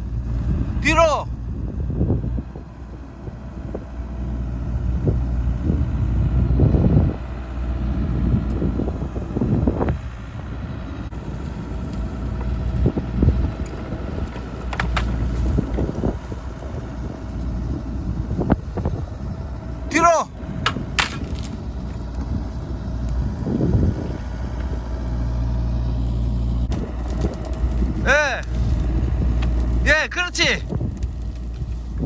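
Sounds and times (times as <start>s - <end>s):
excavator diesel engine: 0.0s - 32.0s
wood knocking and cracking: 11.4s - 16.3s, 20.6s - 22.3s, 26.7s - 29.8s, 30.6s - 32.0s.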